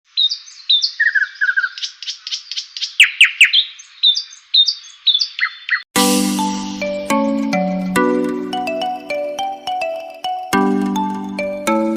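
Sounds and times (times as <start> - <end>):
birds chirping: 0.1 - 5.9
chime-like music: 6.0 - 11.9.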